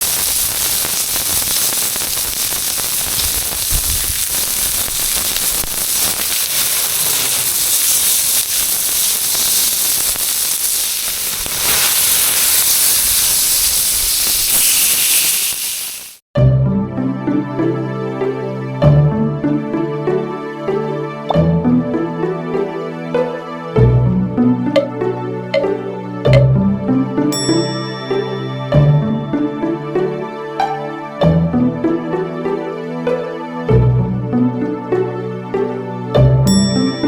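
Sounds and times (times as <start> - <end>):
wood fire hissing and crackling: 0.0 - 16.2.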